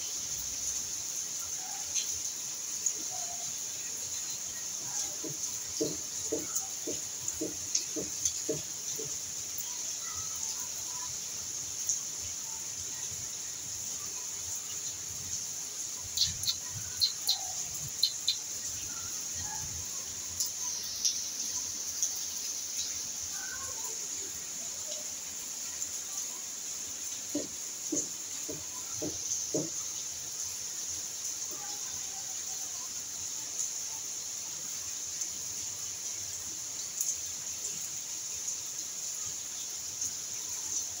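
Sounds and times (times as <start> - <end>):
steady high hiss: 0.0 - 5.0, 9.3 - 27.2
bird chirps: 16.0 - 19.5.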